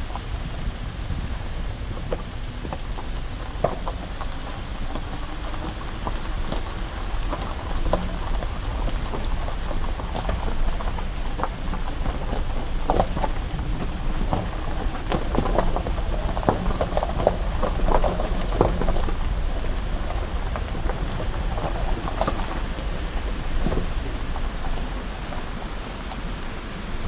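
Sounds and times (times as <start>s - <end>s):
engine and tyres on wet road: 0.0s - 27.0s
raindrops pattering on car: 0.0s - 27.0s.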